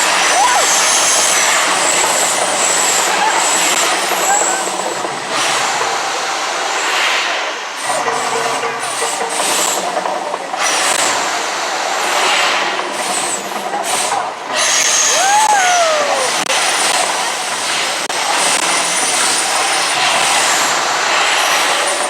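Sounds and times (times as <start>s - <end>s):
rushing hissing eruption roars: 0.0s - 22.0s
rising and falling whistle: 14.8s - 16.4s.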